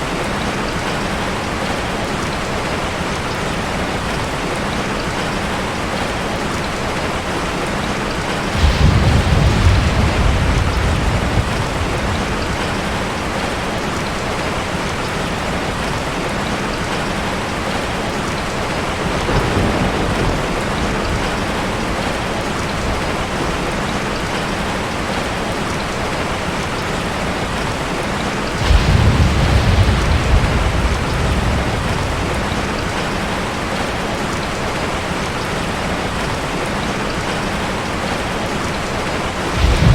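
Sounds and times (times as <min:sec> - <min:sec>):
steady rain: 0:00.0 - 0:39.9
thunder rumbling: 0:07.8 - 0:14.1, 0:18.3 - 0:23.9, 0:28.5 - 0:35.0, 0:39.3 - 0:39.9.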